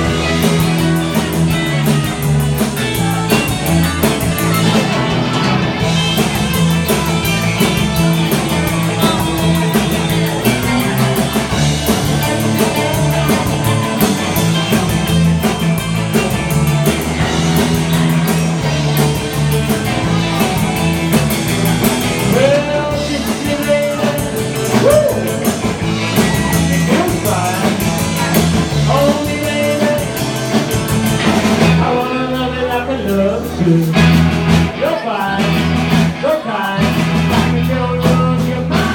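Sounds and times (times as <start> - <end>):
drum kit: 0.0 - 38.9
electric guitar: 0.0 - 38.9
person singing: 21.9 - 30.7, 31.6 - 38.9.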